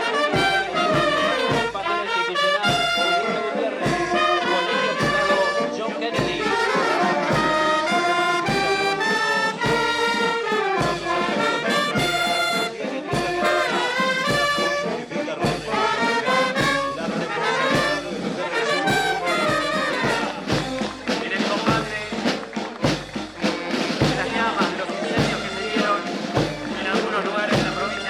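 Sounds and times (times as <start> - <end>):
brass band playing: 0.0 - 28.0.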